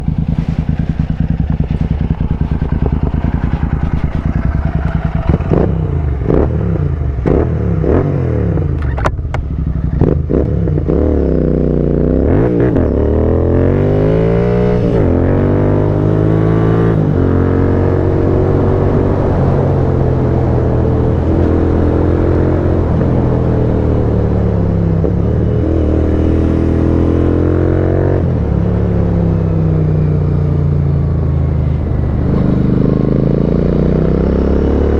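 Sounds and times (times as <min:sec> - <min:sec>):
exhaust cracks: 0:00.0 - 0:06.5
motorcycle engine revving: 0:00.0 - 0:34.9.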